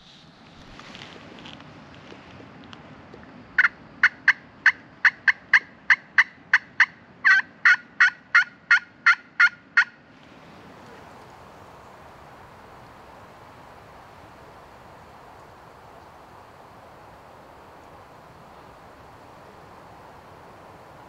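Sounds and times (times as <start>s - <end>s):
turkey call hen yelps: 3.6s - 10.0s.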